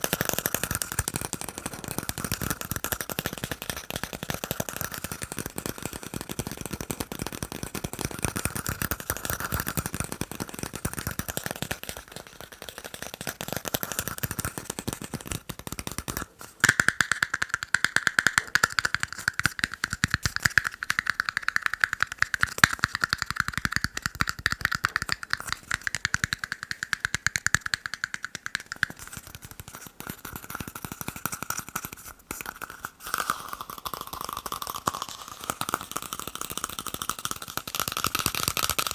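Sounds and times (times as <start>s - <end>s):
fast tapping on plastic cups: 0.0s - 38.9s.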